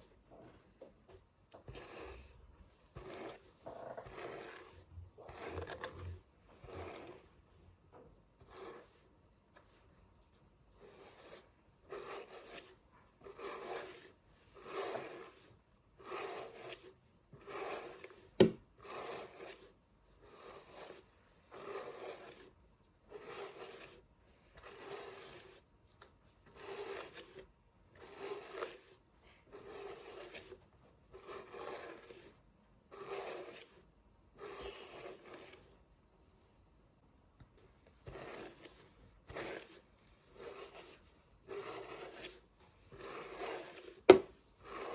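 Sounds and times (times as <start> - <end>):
hairbrush brushing through hair: 3.0 - 7.2, 10.8 - 19.7, 20.3 - 22.5, 28.1 - 29.0, 31.2 - 33.8, 34.4 - 35.7, 38.0 - 44.9.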